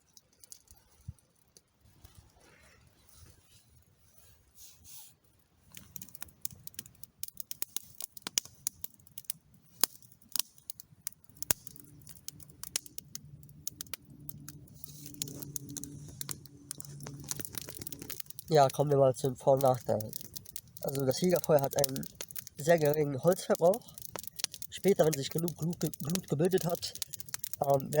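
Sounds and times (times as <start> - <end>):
campfire crackling and popping: 0.0 - 2.5, 5.6 - 28.0
low hum: 13.1 - 18.3.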